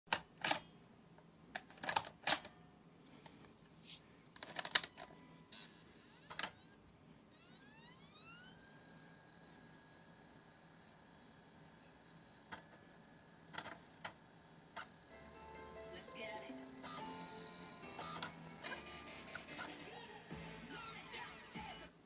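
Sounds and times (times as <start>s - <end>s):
spindle motor whine: 5.5s - 21.9s.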